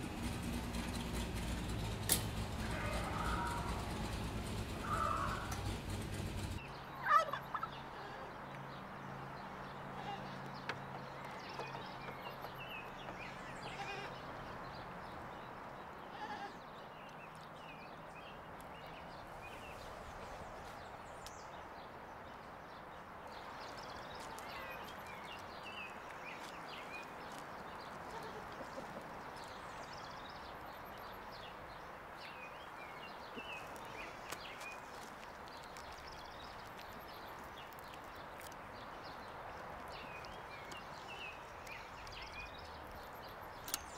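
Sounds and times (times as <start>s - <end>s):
low hum: 0.0s - 6.6s
birds chirping: 0.0s - 43.9s
goats bleating: 2.4s - 5.7s, 13.6s - 14.2s.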